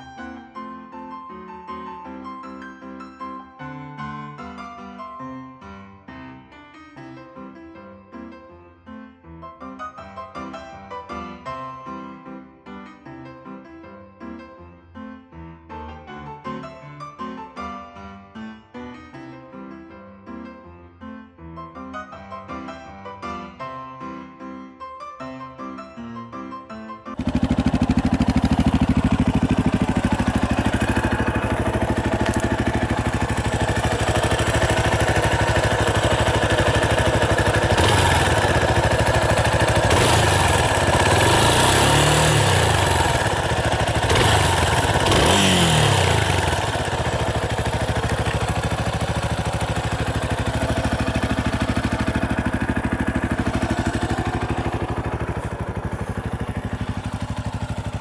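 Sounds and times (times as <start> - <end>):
motorcycle engine idling and revving: 27.1 - 58.0.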